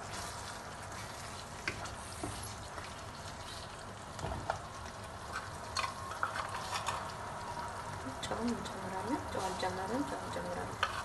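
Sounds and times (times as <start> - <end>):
wooden spatula stirring: 0.0 - 4.0, 9.3 - 11.0
stew sizzling with small pops: 0.0 - 11.0.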